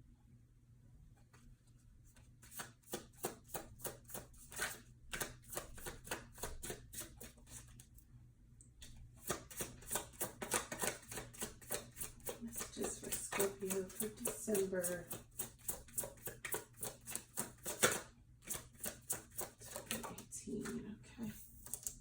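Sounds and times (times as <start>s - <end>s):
cards being shuffled: 2.1s - 7.9s, 9.2s - 14.1s, 15.1s - 20.2s, 21.4s - 22.0s.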